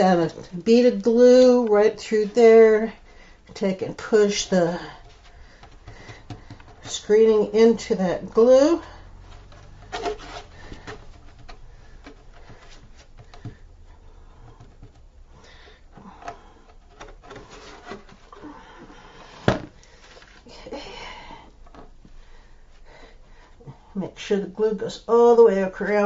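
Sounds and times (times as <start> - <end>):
hands rubbing and rustling: 0.0 - 15.4.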